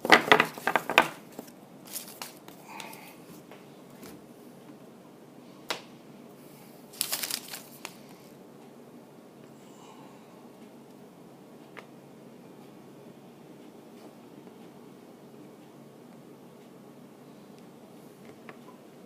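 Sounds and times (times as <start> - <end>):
cards and wrappers rustling: 0.0 - 3.0, 6.9 - 8.3.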